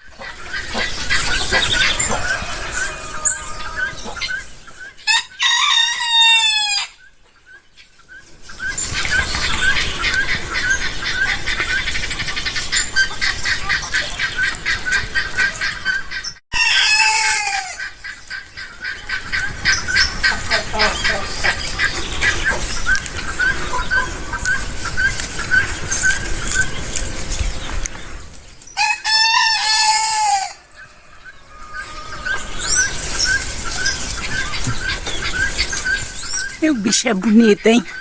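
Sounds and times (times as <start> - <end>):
rooster crowing: 1.7 - 4.1, 5.1 - 7.0, 28.8 - 32.8.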